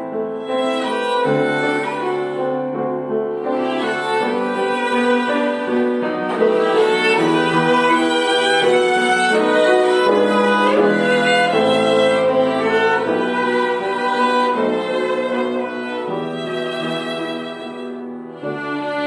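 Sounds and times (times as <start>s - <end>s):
violin ensemble playing melody: 0.0s - 19.0s.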